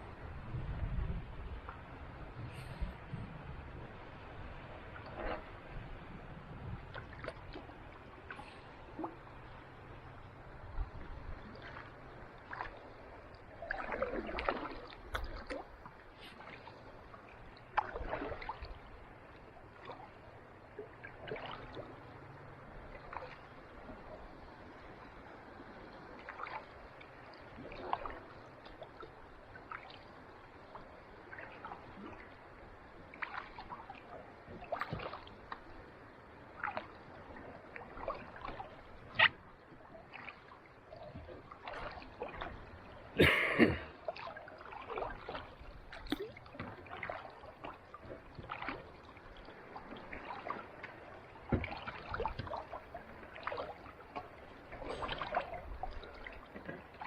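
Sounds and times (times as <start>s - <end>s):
soft water wash: 0.0s - 57.0s
paddle splashes: 1.1s - 57.0s
water dripping from paddle: 11.5s - 20.1s, 20.8s - 22.0s, 22.9s - 23.4s, 26.2s - 26.7s, 27.3s - 30.0s, 33.1s - 35.6s, 36.6s - 37.0s, 37.7s - 42.5s, 43.1s - 57.0s.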